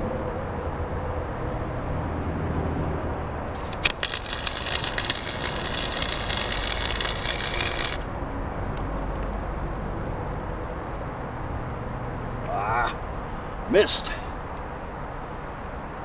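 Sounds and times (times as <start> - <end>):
welder arc crackling: 3.6 - 8.1.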